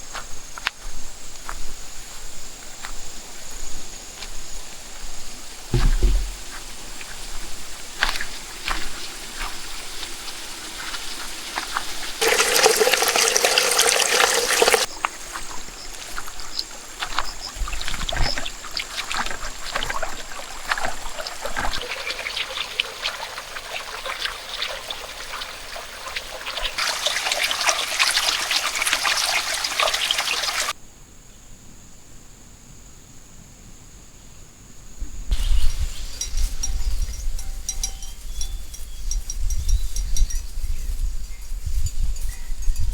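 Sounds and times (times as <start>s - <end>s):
water trickling and splashing: 5.6s - 30.8s, 35.3s - 39.6s.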